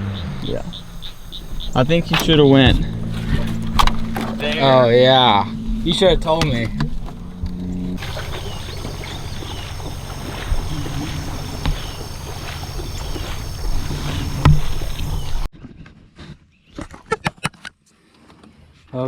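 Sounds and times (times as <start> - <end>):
boat engine rumble: 0.0 - 15.5
water noise: 0.0 - 15.5.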